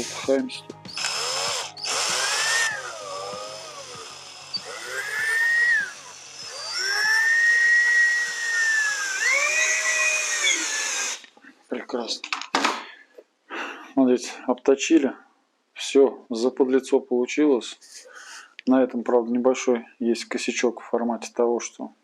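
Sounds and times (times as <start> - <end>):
harsh grinding burst: 0.0 - 11.3
power tool motor whining: 0.0 - 11.3.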